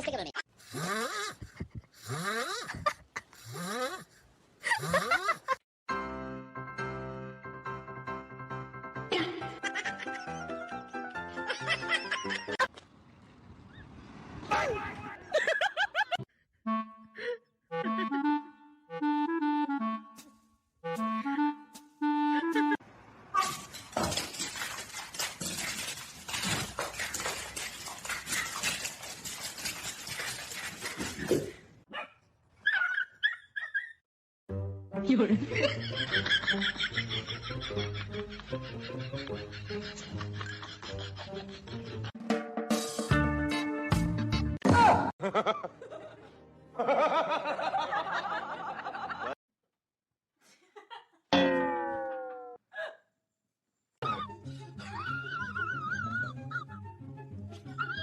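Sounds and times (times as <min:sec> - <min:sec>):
laughter: 0:04.6 - 0:05.6, 0:09.1 - 0:12.7, 0:15.3 - 0:16.3, 0:35.4 - 0:42.2, 0:45.2 - 0:49.4, 0:50.4 - 0:51.3, 0:57.5 - 0:58.0.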